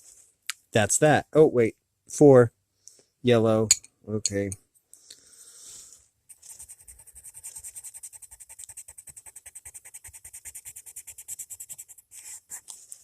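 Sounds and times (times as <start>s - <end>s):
pencil scratching on paper: 6.3s - 13.0s.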